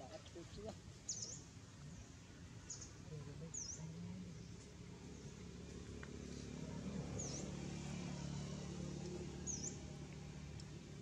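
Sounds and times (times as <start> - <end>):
low outdoor background hum: 0.0 - 11.0
bird chirping: 1.1 - 1.4, 9.5 - 9.8.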